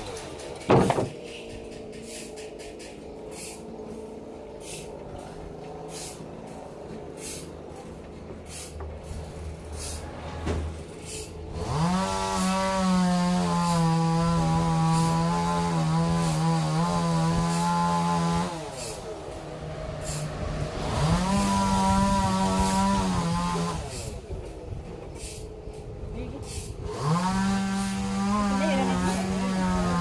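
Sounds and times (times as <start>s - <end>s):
sawmill saw cutting timber: 0.0s - 10.1s, 10.8s - 24.4s, 26.4s - 30.0s.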